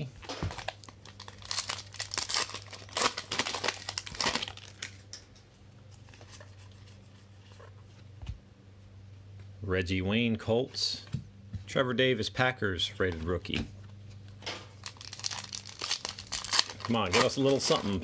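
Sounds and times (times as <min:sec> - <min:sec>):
plastic wrapper tearing and crinkling: 0:00.4 - 0:05.1, 0:14.7 - 0:18.0.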